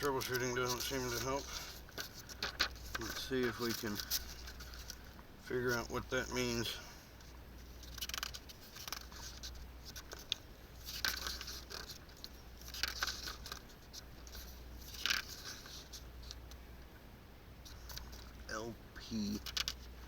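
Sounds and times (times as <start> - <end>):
paper pages rustling and turning: 0.0 - 6.8, 7.6 - 16.6
light handling ticks: 0.0 - 16.9, 17.6 - 20.0
steady low hum: 0.0 - 20.0.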